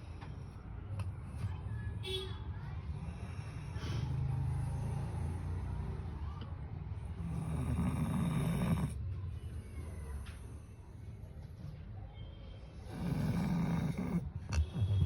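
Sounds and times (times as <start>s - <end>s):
dog snoring: 7.1s - 9.0s, 12.8s - 15.0s.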